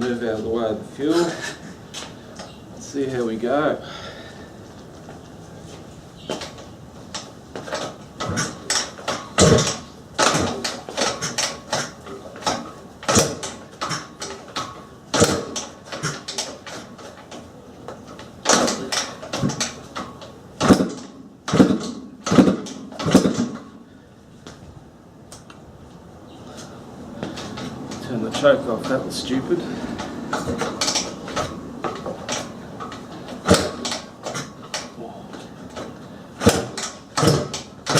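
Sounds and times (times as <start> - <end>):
kickstart clunks: 6.4 - 17.4, 18.1 - 23.7, 29.6 - 34.9, 35.7 - 37.9.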